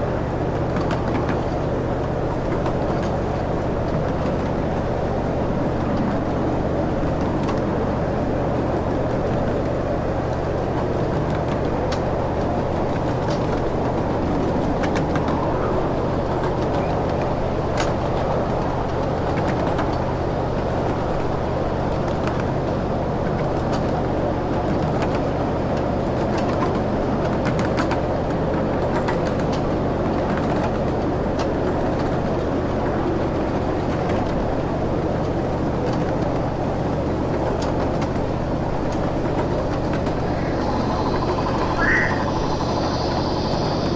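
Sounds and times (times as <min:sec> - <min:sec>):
train rumbling clatter: 0:00.0 - 0:43.9
engine hum: 0:34.5 - 0:43.9.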